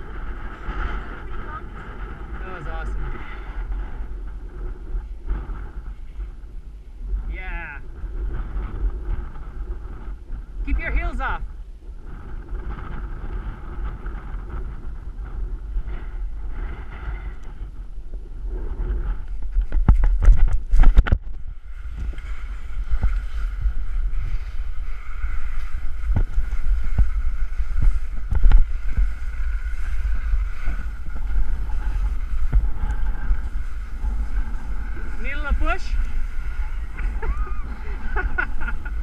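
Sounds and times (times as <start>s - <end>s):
wind buffeting microphone: 0.0s - 39.0s
snow scraping hiss under body: 18.4s - 39.0s.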